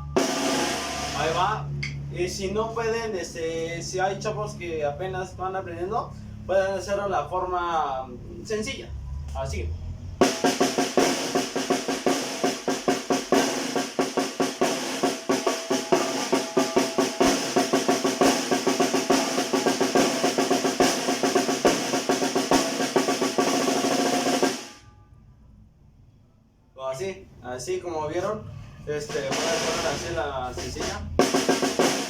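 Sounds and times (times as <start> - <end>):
snare drum strokes and rolls: 0.2 - 1.5, 10.2 - 24.8, 29.1 - 32.0.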